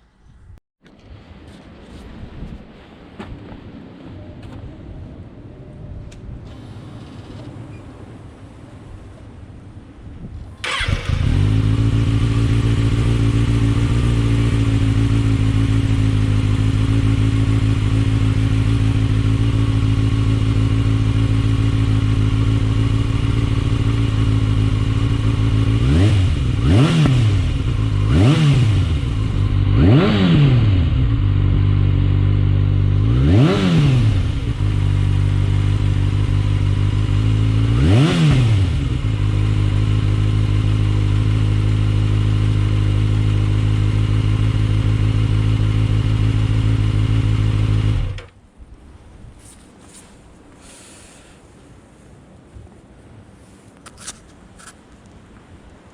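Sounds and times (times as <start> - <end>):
motorcycle engine idling and revving: 10.5 - 48.4.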